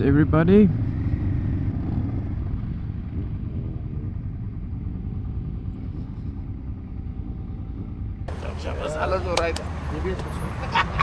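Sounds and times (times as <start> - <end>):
motorcycle engine rumbling: 8.3 - 11.0.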